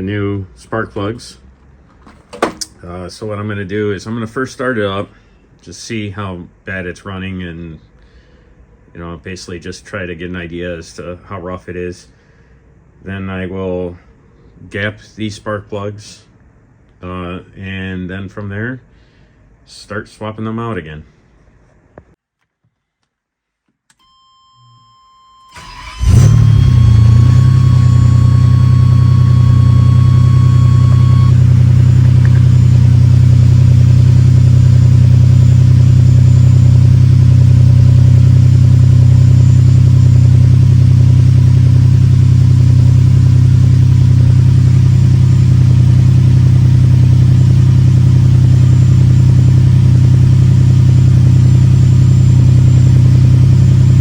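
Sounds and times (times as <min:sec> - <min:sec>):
electronic warning tone: 0:24.6 - 0:40.7
car engine cranking and idling: 0:25.5 - 0:54.0.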